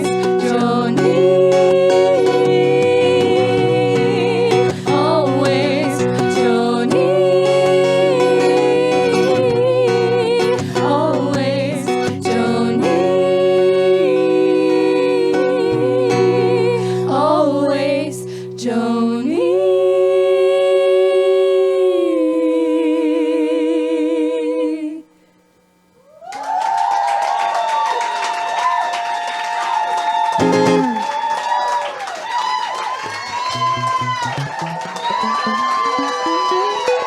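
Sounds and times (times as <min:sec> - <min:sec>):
woman singing wordlessly: 0:00.0 - 0:25.2.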